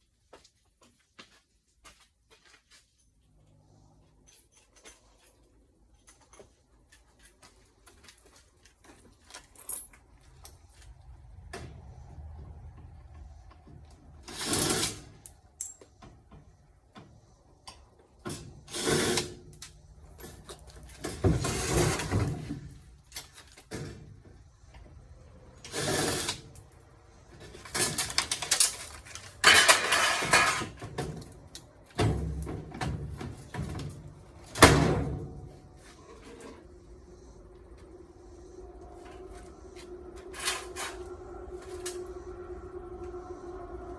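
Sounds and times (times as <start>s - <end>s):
tools scraping and clanking metal: 2.7s - 16.6s, 17.6s - 24.9s, 25.5s - 43.9s.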